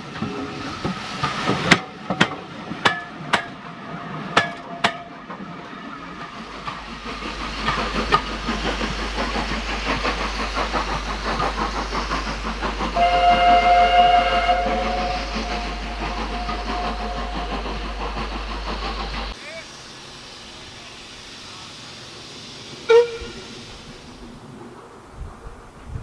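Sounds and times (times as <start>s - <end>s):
train sharp clanks: 0.0s - 19.4s, 21.5s - 24.2s
steam train rushing: 0.0s - 26.0s
steam whistle blowing: 13.0s - 17.8s, 22.8s - 23.5s.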